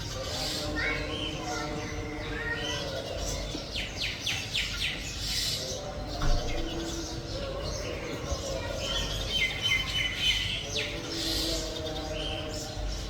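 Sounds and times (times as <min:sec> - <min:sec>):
brief thump: 0:06.2 - 0:06.8.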